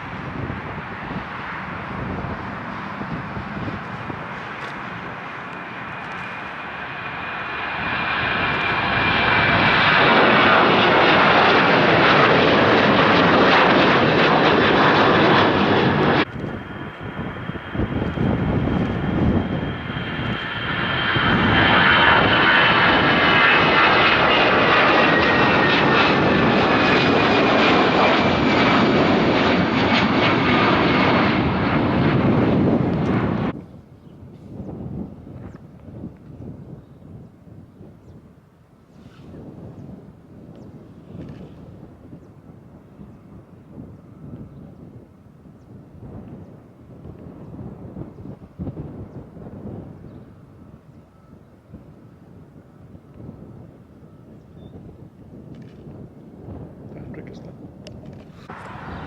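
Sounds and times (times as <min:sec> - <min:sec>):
jet engines roaring and whining: 0:00.0 - 0:59.0.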